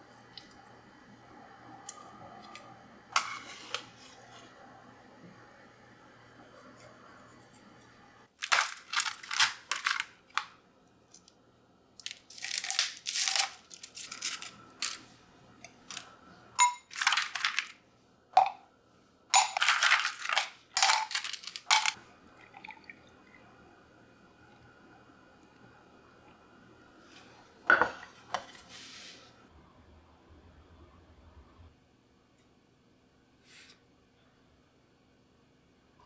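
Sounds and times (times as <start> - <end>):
rustling and rattling handling: 19.6 - 22.0.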